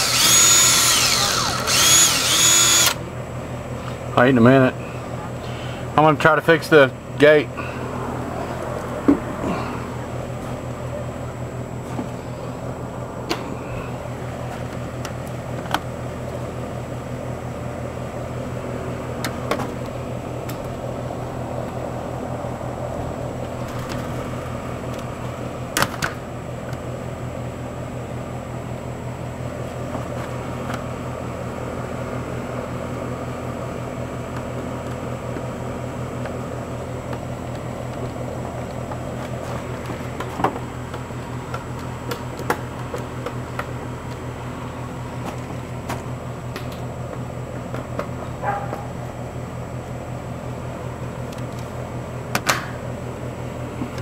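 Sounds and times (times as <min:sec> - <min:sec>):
motor humming: 0:00.0 - 0:03.2.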